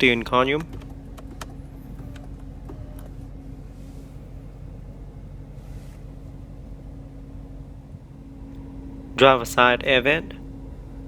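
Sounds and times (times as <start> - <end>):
car cabin hum: 0.0 - 11.0.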